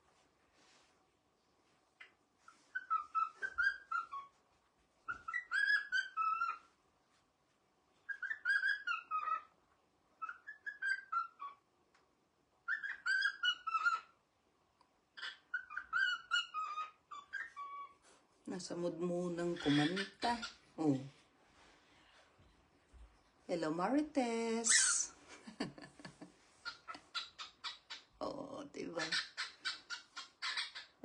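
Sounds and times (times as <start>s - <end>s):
cockatiel chirping and chattering: 2.7s - 4.3s, 5.1s - 6.6s, 8.1s - 9.5s, 10.2s - 11.6s, 12.6s - 14.1s, 15.2s - 18.0s, 19.4s - 20.6s, 24.7s - 25.1s, 26.6s - 28.2s, 28.9s - 31.0s.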